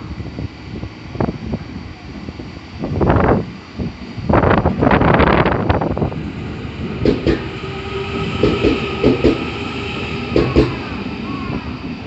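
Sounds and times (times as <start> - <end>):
train wheel noise: 0.0 - 12.0
train whine: 0.0 - 12.0
wheels clacking on rail joints: 10.3 - 10.8.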